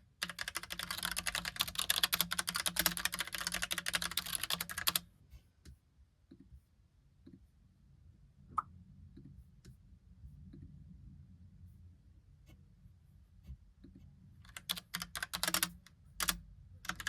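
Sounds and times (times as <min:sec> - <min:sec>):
fast typing on keyboard: 0:00.2 - 0:05.0, 0:14.5 - 0:17.0.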